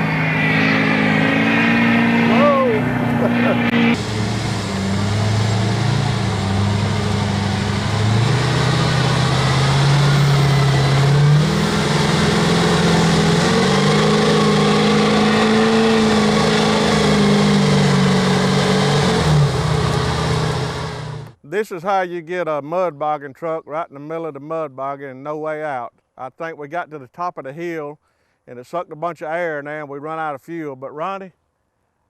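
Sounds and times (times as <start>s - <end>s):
monster truck engine under load: 0.0s - 21.4s.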